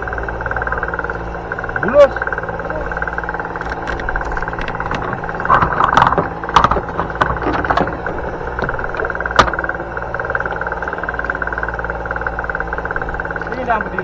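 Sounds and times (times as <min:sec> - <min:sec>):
boat engine running: 0:00.0 - 0:14.0
clattering knocks: 0:03.0 - 0:11.4.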